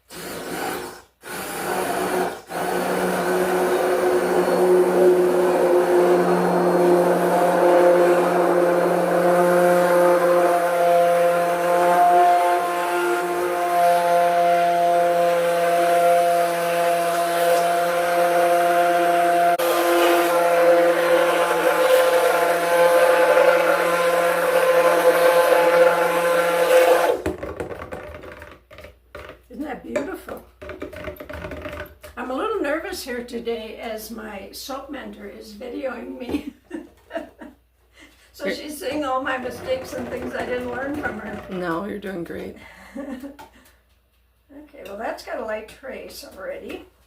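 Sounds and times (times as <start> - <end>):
stick blender running: 0.0 - 28.6, 38.5 - 41.9.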